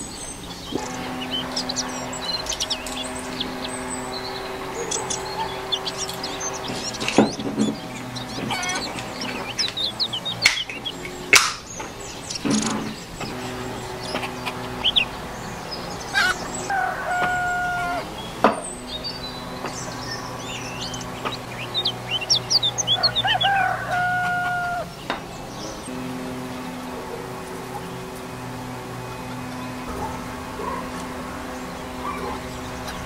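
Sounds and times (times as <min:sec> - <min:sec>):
small birds chirping: 0:00.0 - 0:33.0
sharp clicks: 0:00.5 - 0:15.1
rooster crowing: 0:00.9 - 0:11.0, 0:13.5 - 0:33.0.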